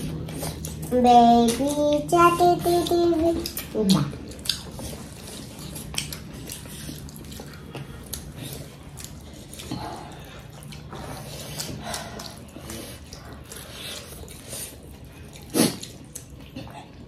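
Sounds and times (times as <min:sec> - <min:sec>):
chewing and wet mouth noises: 0:00.0 - 0:17.0
steady low hum: 0:00.0 - 0:17.0.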